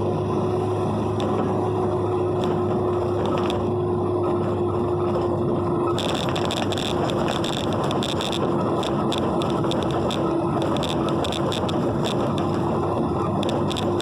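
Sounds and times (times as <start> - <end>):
road rumble and engine hum: 0.0 - 14.0
rain pattering on car: 0.7 - 14.0.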